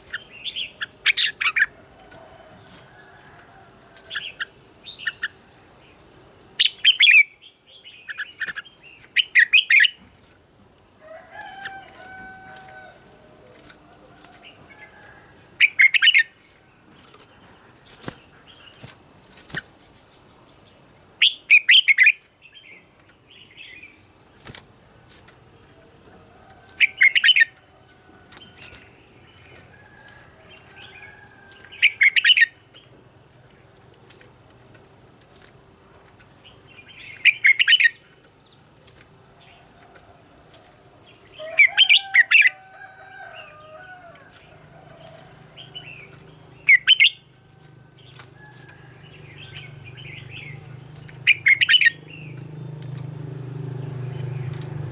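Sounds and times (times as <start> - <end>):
bulbul singing: 26.8 - 29.8, 30.5 - 32.9, 36.4 - 38.6, 41.1 - 54.9.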